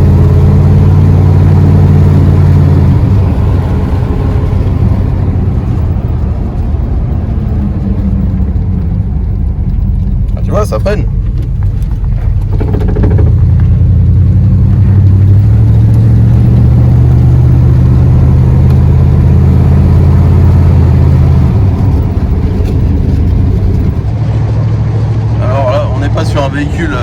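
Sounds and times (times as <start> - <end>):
truck engine low drone: 0.0 - 27.0.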